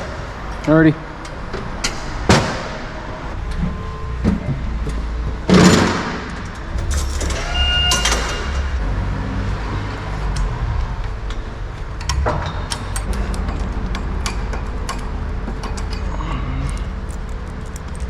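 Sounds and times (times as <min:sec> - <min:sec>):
scattered clicks and knocks: 0:05.6 - 0:08.8, 0:12.0 - 0:16.0, 0:16.7 - 0:18.0
brief ringing tone: 0:06.8 - 0:08.8
steady low rumble: 0:10.1 - 0:18.0.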